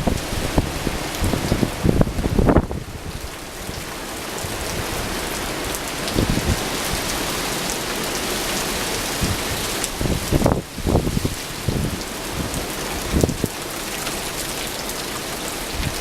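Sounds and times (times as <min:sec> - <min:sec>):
wind buffeting microphone: 0:00.0 - 0:07.4, 0:08.9 - 0:13.6
heavy rain spattering: 0:00.0 - 0:16.0.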